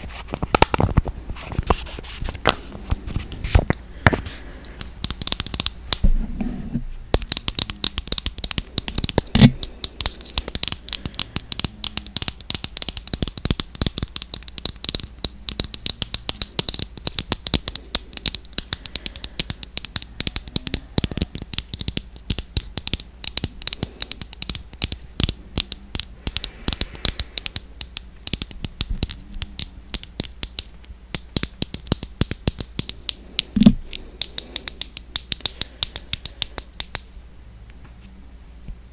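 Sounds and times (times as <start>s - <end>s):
fingernails tapping on packaging: 7.2s - 37.0s.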